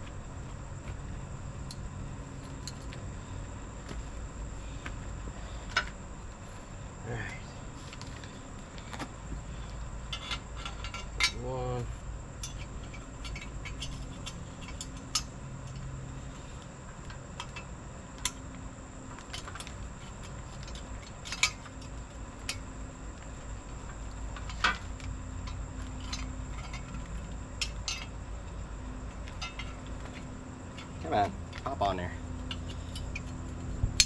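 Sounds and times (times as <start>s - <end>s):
metal parts clinking: 12.4s - 15.8s, 24.3s - 28.1s, 29.3s - 31.8s
sharp metal clanks: 29.4s - 31.2s.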